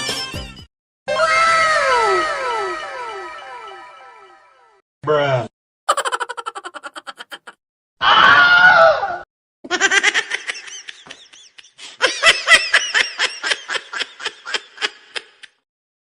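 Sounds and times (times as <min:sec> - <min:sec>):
rapid high-pitched laughter: 0:05.9 - 0:07.6, 0:09.7 - 0:15.5
loud yell: 0:08.0 - 0:09.2.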